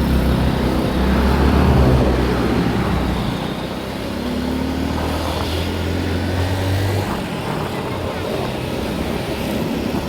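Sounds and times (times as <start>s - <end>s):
vehicle engine running: 0.0s - 3.6s.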